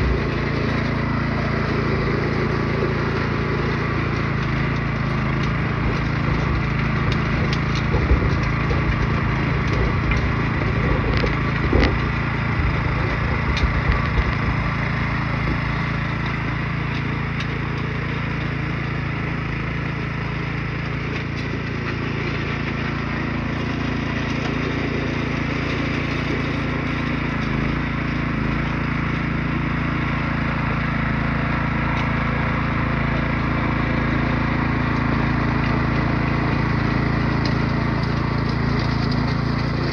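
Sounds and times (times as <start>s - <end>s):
small engine running: 0.0s - 39.9s
sharp clicks and knocks: 3.6s - 18.5s.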